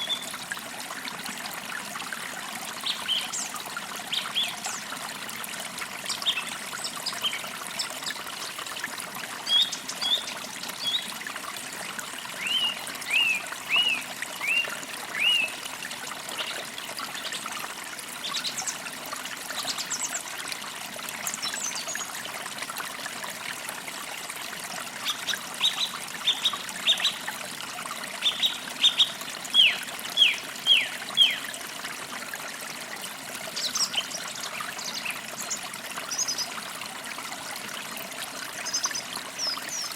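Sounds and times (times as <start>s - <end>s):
creek water trickling: 0.0s - 39.9s
birds chirping: 28.2s - 31.4s.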